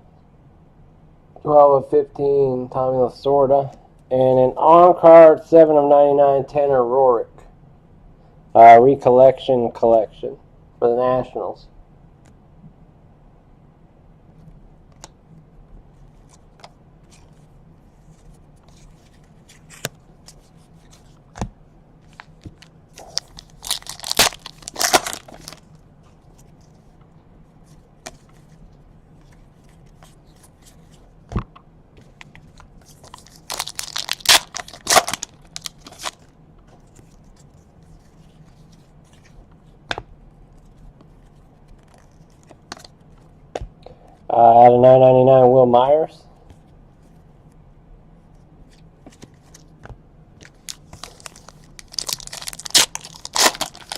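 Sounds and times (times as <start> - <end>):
wrappers tearing and crinkling: 22.2 - 25.7, 32.8 - 36.3, 50.5 - 53.9.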